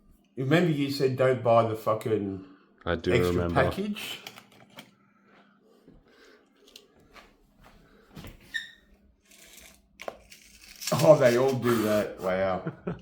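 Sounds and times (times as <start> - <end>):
short squeak: 8.5 - 8.9.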